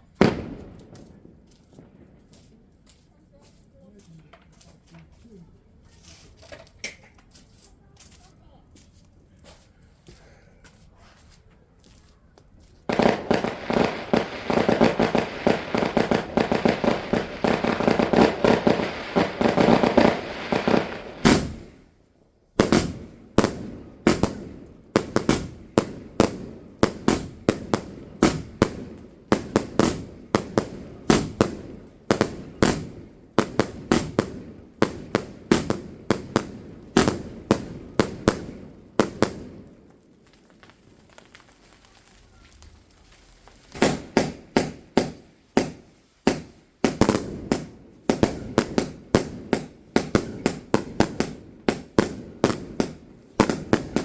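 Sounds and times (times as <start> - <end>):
fireworks sharp bangs: 0.0 - 2.4, 12.9 - 22.0, 22.6 - 40.1, 43.7 - 54.0
fireworks crackling: 0.0 - 3.2, 12.7 - 54.0.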